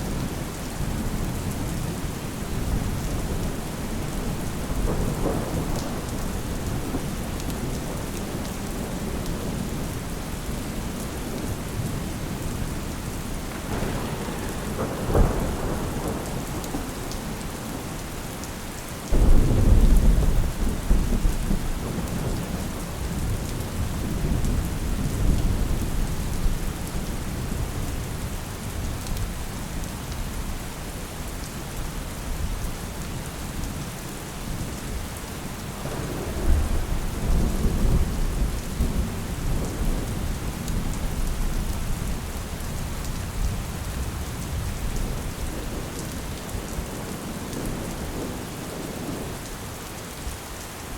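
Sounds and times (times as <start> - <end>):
steady rain: 0.0 - 50.9
thunder rolling: 13.5 - 17.5, 19.1 - 25.8, 35.8 - 40.4.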